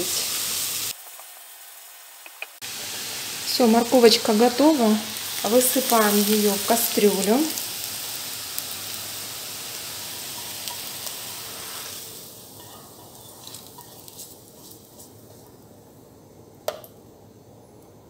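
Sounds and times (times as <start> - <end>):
hot oil sizzling: 0.0 - 15.9
spatula scraping ticks: 12.6 - 15.5.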